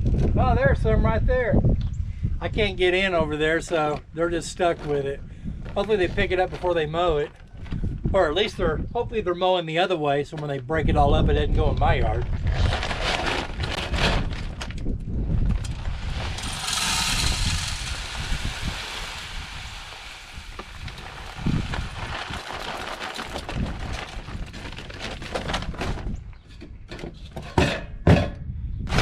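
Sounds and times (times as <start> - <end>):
birdseed pouring into feeder: 15.6 - 24.3.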